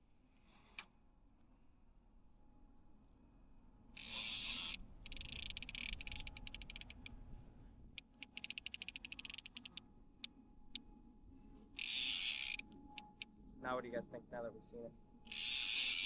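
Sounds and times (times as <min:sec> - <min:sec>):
fishing reel drag clicking: 0:04.0 - 0:07.2, 0:08.0 - 0:09.8, 0:11.8 - 0:13.3, 0:15.3 - 0:16.0.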